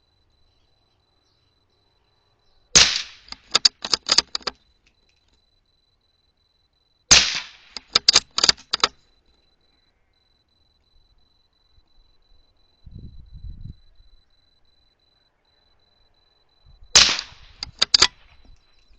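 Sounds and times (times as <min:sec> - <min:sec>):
rifle shots: 0:02.8 - 0:04.5, 0:07.1 - 0:08.9, 0:17.0 - 0:18.4
rifle bolt clicks: 0:02.8 - 0:05.2, 0:07.1 - 0:09.0, 0:17.0 - 0:18.7.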